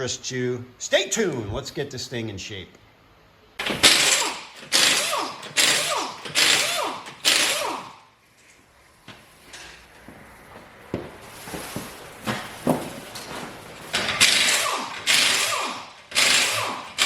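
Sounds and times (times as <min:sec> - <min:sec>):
power tool spinning: 0:03.6 - 0:08.0, 0:13.8 - 0:17.0.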